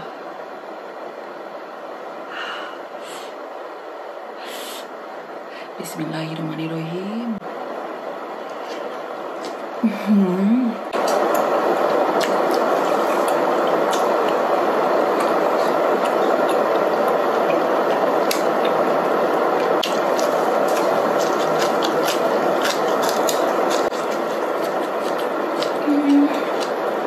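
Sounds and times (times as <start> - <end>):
crunchy chewing of herbs: 8.4 - 9.8, 10.9 - 27.0.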